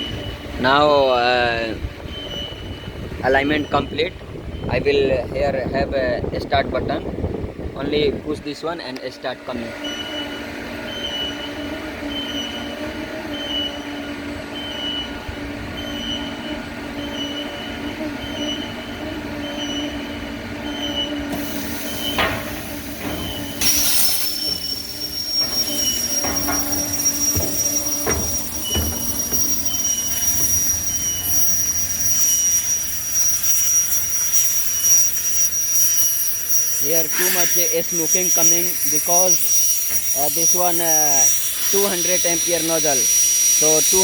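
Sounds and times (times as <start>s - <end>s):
machine humming: 9.7s - 44.0s
plasma arc hissing and whining: 15.8s - 44.0s
short high beeps: 21.0s - 44.0s.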